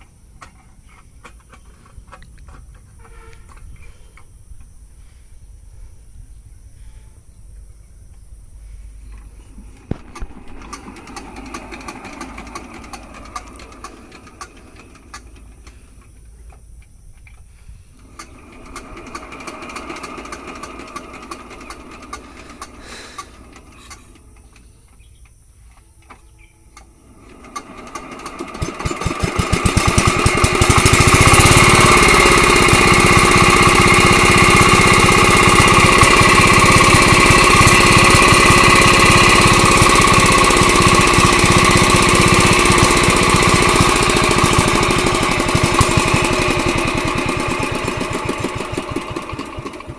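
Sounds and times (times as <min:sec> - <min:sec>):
diesel engine starting up: 0:08.6 - 0:16.8, 0:17.5 - 0:25.1, 0:25.8 - 0:49.9.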